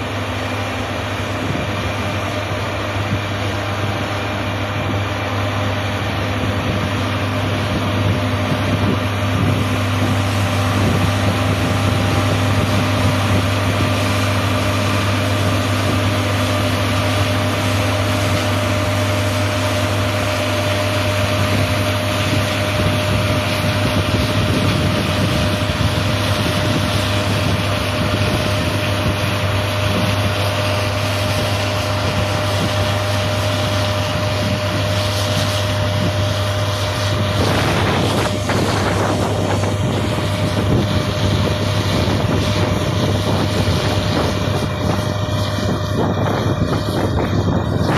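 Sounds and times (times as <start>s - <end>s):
combine harvester running: 0.0s - 47.9s
high machinery whine: 0.0s - 47.9s.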